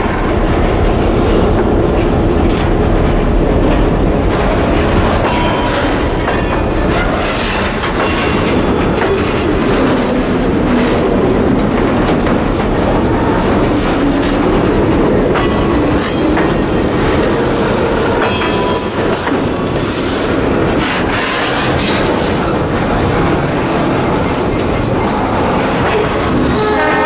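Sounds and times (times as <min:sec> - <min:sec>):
freight train wheels clattering: 0:00.0 - 0:27.0.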